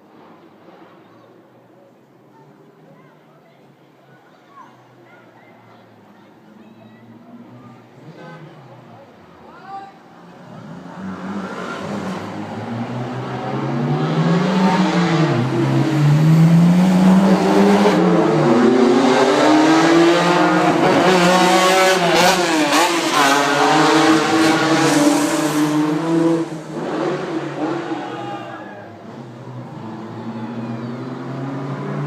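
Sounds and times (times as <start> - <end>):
racing car engine accelerating: 10.4 - 28.3, 29.0 - 32.0.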